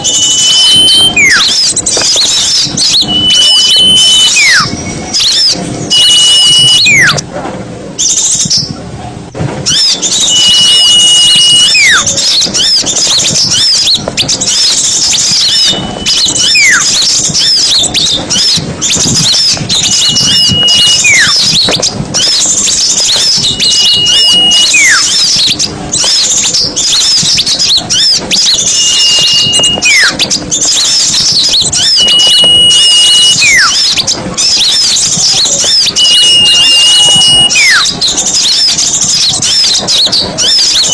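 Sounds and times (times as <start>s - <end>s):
songbirds chattering: 0.0s - 7.2s, 9.6s - 40.9s
whistle sliding down in pitch: 3.0s - 7.2s, 9.7s - 12.7s, 15.4s - 16.9s, 19.7s - 21.6s, 23.2s - 25.2s, 28.7s - 30.2s, 31.8s - 34.0s, 35.6s - 38.0s.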